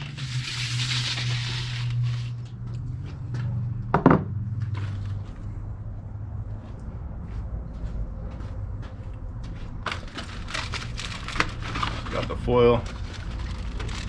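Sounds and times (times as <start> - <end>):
steady low hum: 1.4 - 10.1
rustling: 9.9 - 14.0.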